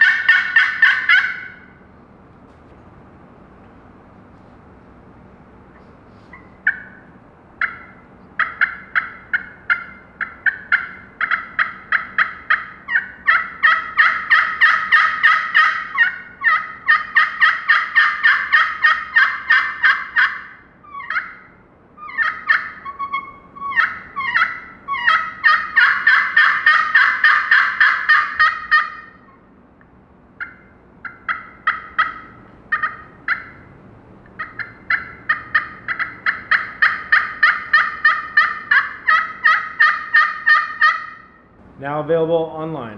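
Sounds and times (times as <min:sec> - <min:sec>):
turkey call yelps: 0:00.0 - 0:01.9, 0:06.1 - 0:29.5, 0:30.4 - 0:41.6.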